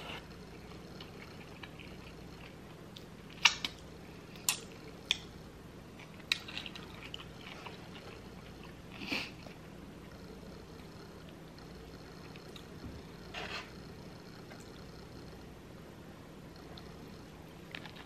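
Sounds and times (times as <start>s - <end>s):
person chewing food: 0.2s - 5.3s, 6.0s - 9.7s.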